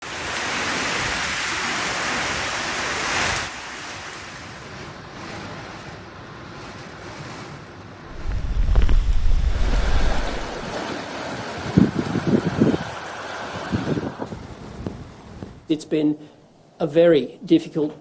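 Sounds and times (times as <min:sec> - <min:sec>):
rushing water: 0:00.0 - 0:15.6
wind: 0:00.0 - 0:18.0
wind buffeting microphone: 0:08.0 - 0:15.7.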